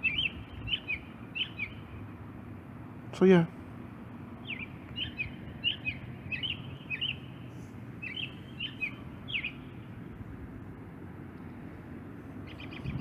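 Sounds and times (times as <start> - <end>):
bird chirping: 0.0 - 2.1, 4.4 - 10.1, 12.4 - 13.0.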